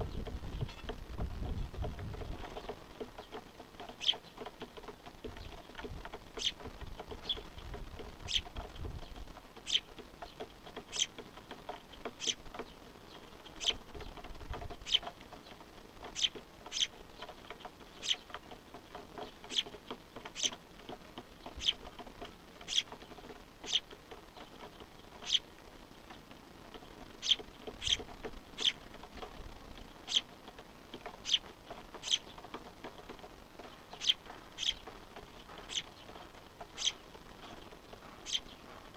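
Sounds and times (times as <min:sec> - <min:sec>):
fledgling bird begging calls: 0:10.9 - 0:11.1, 0:12.2 - 0:12.4, 0:16.1 - 0:16.9, 0:18.0 - 0:18.2, 0:20.3 - 0:20.6, 0:21.5 - 0:21.9, 0:22.7 - 0:22.9, 0:25.2 - 0:25.5, 0:27.2 - 0:28.8, 0:30.0 - 0:30.3, 0:31.2 - 0:32.3, 0:33.9 - 0:34.9, 0:35.6 - 0:36.0, 0:36.8 - 0:37.0, 0:38.2 - 0:38.6.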